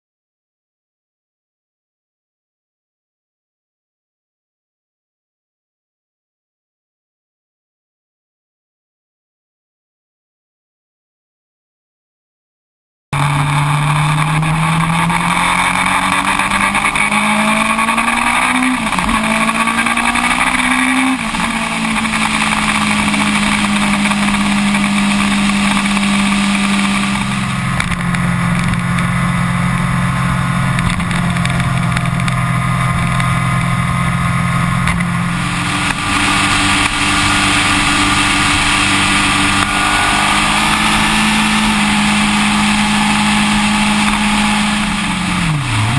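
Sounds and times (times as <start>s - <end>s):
motorcycle engine running: 13.2s - 45.9s
rushing noise: 13.2s - 45.9s.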